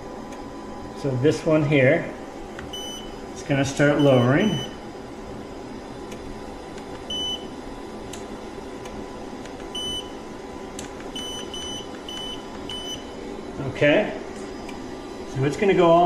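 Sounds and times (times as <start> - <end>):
treadmill motor hum: 0.0 - 16.0
treadmill console beeps: 2.7 - 3.2, 4.0 - 4.8, 7.1 - 7.5, 9.7 - 10.2, 11.1 - 13.1.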